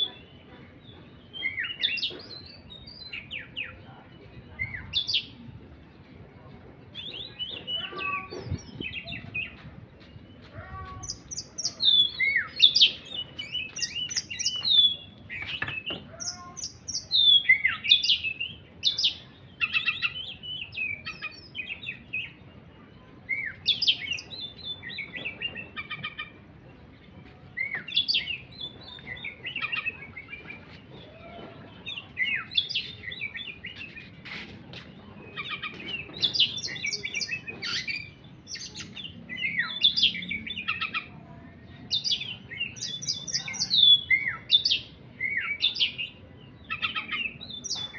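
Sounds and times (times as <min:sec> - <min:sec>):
songbird chirping and whistling: 0:00.9 - 0:05.4, 0:06.9 - 0:22.4, 0:27.5 - 0:41.1.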